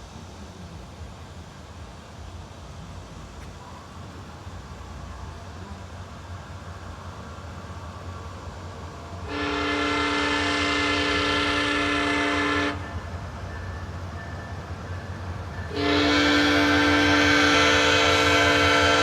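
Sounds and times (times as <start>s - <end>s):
locomotive air horn blasts: 9.2s - 13.1s, 15.7s - 19.0s.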